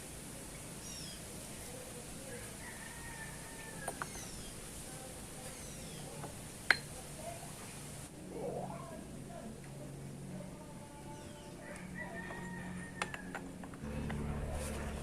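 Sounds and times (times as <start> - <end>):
background hiss: 0.0 - 11.7
birds chirping: 0.4 - 2.5, 3.6 - 9.1.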